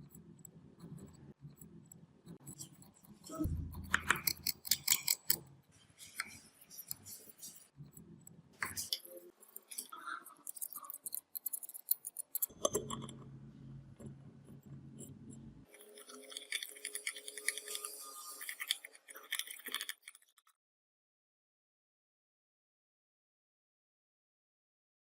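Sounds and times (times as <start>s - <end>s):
low steady hum: 3.3s - 4.9s, 12.5s - 18.1s.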